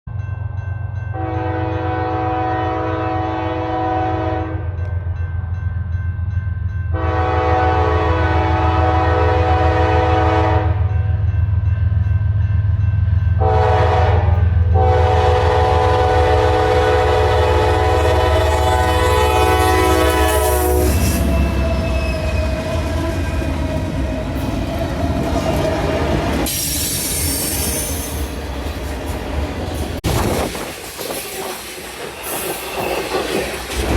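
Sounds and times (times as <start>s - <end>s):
locomotive air horn: 1.2s - 4.8s, 7.0s - 10.9s, 13.4s - 23.4s
diesel locomotive rumble: 12.8s - 33.9s
rail clatter: 18.0s - 33.9s
train wheel squeal: 20.2s - 24.6s, 26.4s - 28.6s, 31.0s - 33.9s.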